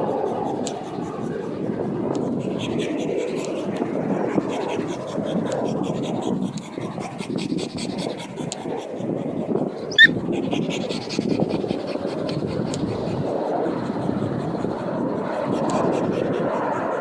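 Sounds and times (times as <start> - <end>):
dog panting: 0.0 - 17.0
sharp squeak: 9.9 - 10.2.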